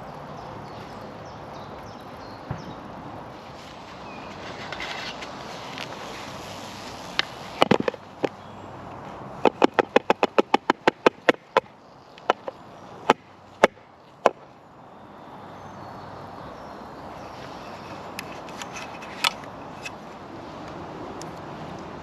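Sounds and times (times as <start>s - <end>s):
sharp knocks: 9.4s - 14.4s.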